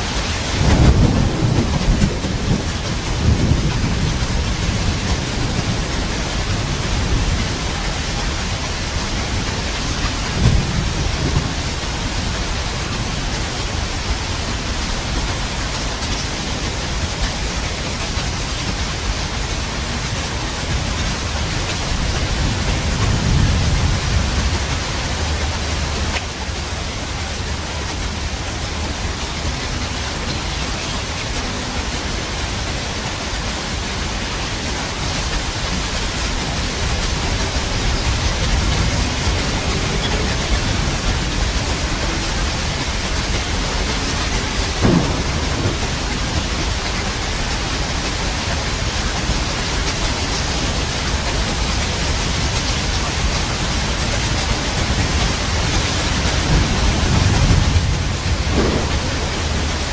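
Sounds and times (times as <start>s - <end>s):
heavy rain: 0.0s - 59.9s
low thunder rumble: 0.0s - 59.9s
sharp thunder crack: 0.6s - 7.7s, 10.3s - 11.6s, 37.8s - 48.3s, 54.8s - 59.9s.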